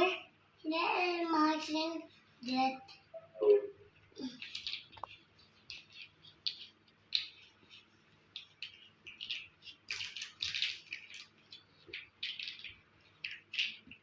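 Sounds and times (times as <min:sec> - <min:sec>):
plastic toy blocks clicking: 0:04.3 - 0:07.8, 0:08.4 - 0:14.0.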